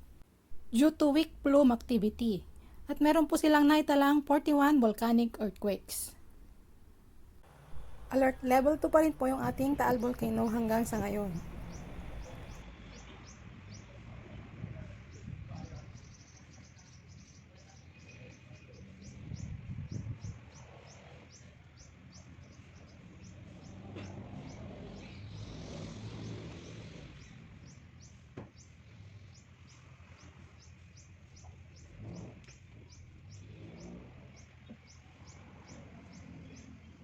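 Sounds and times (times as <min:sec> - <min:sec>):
low steady hum: 0:00.0 - 0:12.6
bird chirping: 0:05.9 - 0:13.4.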